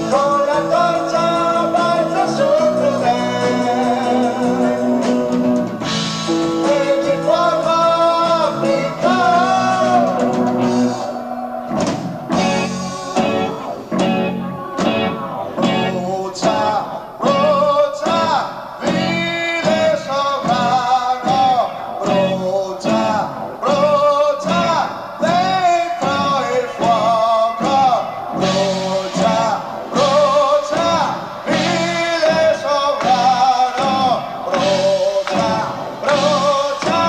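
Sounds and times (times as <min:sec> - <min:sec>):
progressive rock band playing live: 0:00.0 - 0:37.0
drum hits: 0:09.1 - 0:17.4.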